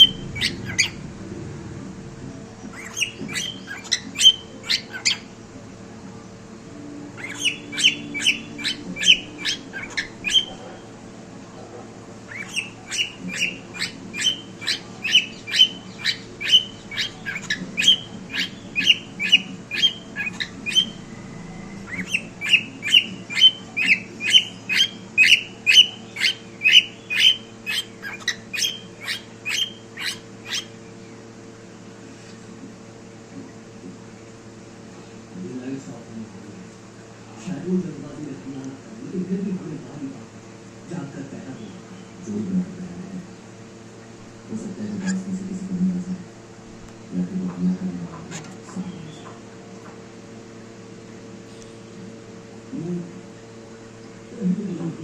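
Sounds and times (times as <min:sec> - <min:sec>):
cockatiel chirping: 0:00.0 - 0:01.0, 0:02.7 - 0:05.3, 0:07.2 - 0:10.8, 0:12.3 - 0:21.0, 0:21.8 - 0:30.8.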